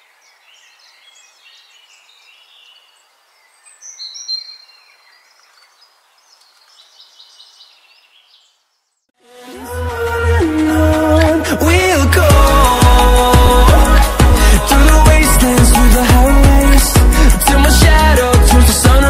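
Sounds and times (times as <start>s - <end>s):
steady outdoor hiss: 0.0s - 8.9s
birds chirping: 0.0s - 9.1s.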